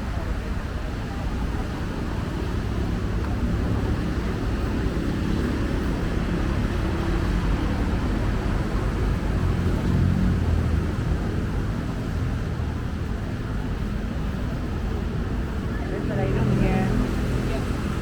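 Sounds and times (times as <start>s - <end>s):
road traffic rumble: 0.0s - 18.0s
heavy vehicle passing: 15.9s - 18.0s.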